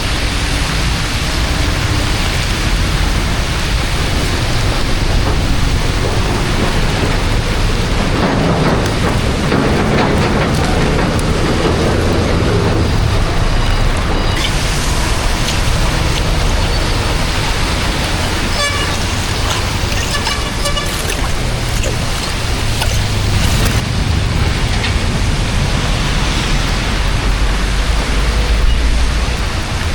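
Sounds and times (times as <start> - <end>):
rain and running water: 0.0 - 29.9
vehicle traffic: 0.0 - 29.9
short horn-like tones: 18.1 - 23.8.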